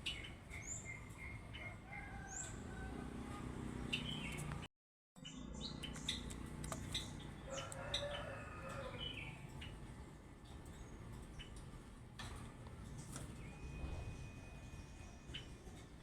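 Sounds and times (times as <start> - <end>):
birds chirping and whistling: 0.0 - 2.6, 3.8 - 4.5, 5.2 - 9.8, 13.3 - 15.8.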